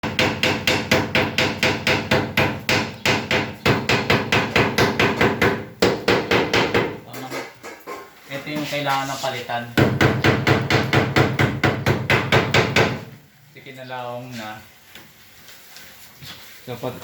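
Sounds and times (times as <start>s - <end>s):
hammer striking rapidly: 0.0s - 7.0s.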